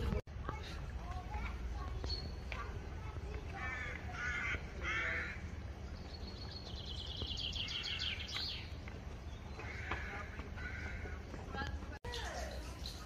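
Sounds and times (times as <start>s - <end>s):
steady outdoor rumble: 0.0s - 13.0s
harsh bird caws: 3.6s - 5.5s, 9.6s - 11.3s.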